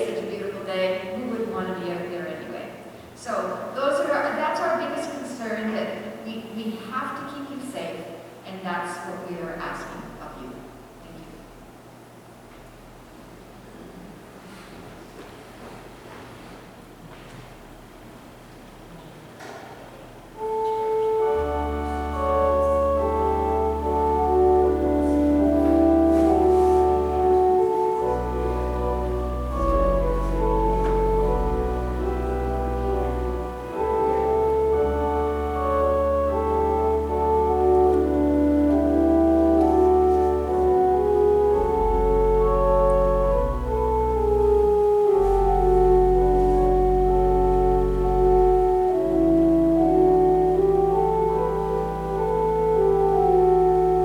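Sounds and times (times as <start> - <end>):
organ playing slow chords: 20.3 - 54.0.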